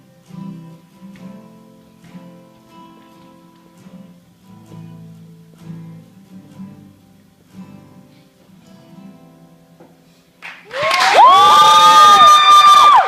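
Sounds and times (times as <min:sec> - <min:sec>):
acoustic guitar strumming: 0:00.0 - 0:10.4.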